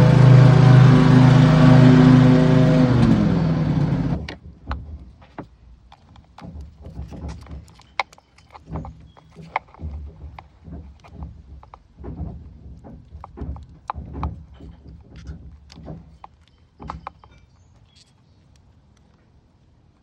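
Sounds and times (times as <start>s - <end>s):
motor running and winding down: 0.0s - 4.2s.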